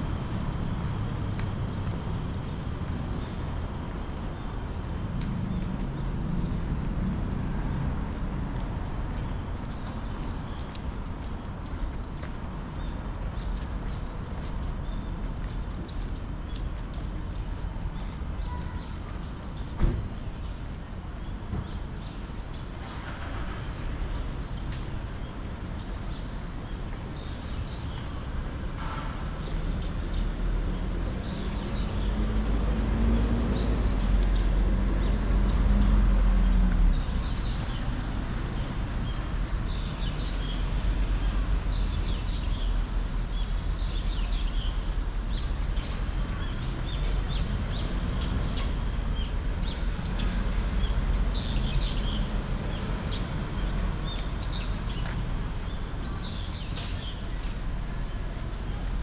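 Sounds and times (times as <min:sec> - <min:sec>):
city traffic rumble: 0:00.0 - 0:59.0.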